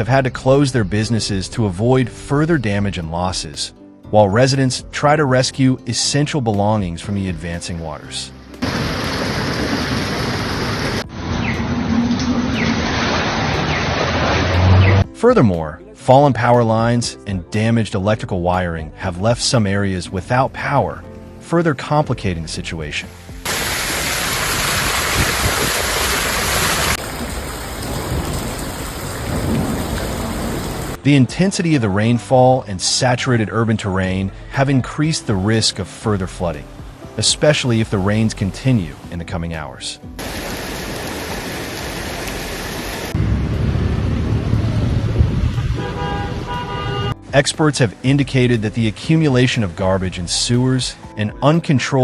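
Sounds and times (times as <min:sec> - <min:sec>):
heavy rain pouring: 0:08.6 - 0:15.0, 0:23.4 - 0:31.0, 0:40.2 - 0:47.2
wind and water rumbling: 0:08.6 - 0:15.0, 0:23.4 - 0:31.0, 0:40.2 - 0:47.2.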